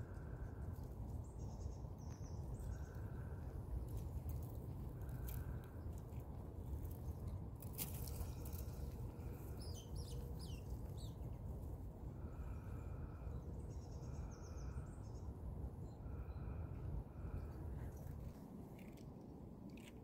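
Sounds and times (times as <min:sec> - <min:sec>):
wind rumble on microphone: 0:00.0 - 0:20.0
small birds chirping: 0:01.2 - 0:06.0, 0:06.8 - 0:11.2.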